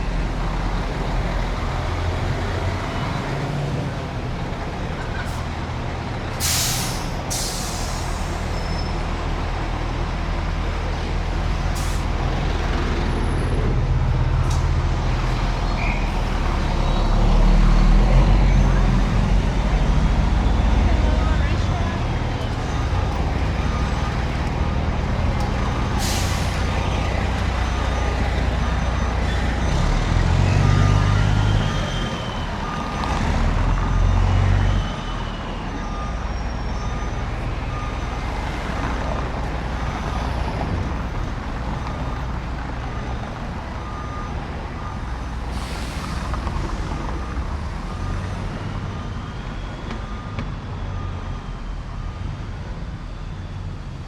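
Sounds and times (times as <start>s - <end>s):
air brake hisses: 6.4s - 8.7s, 26.0s - 26.7s, 45.5s - 46.4s.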